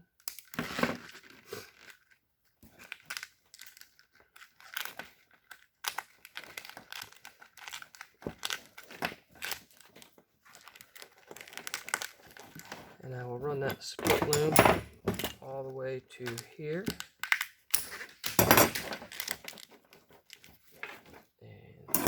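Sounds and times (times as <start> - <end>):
plastic tubing crinkling and rustling: 0.0 - 21.4
small plastic clicks: 16.2 - 17.9.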